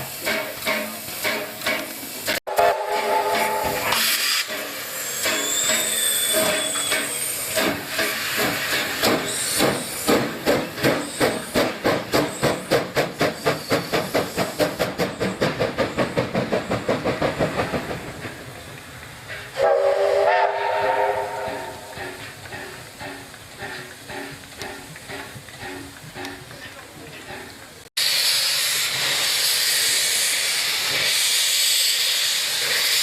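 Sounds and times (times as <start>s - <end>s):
steam hissing: 0.0s - 33.0s
steam locomotive exhaust beats: 0.0s - 33.0s
train whistle blast: 2.5s - 8.2s, 19.5s - 21.9s.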